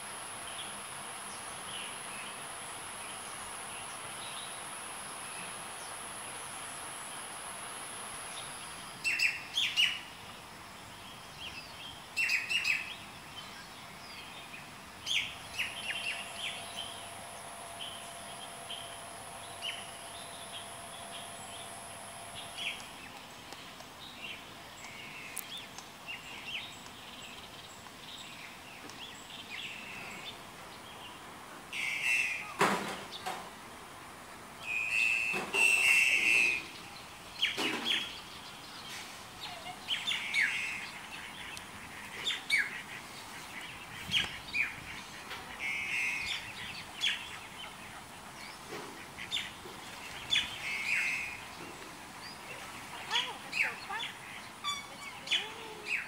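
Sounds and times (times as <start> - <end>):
birds chirping and calling: 15.1 - 23.3, 31.8 - 32.6, 39.4 - 56.0.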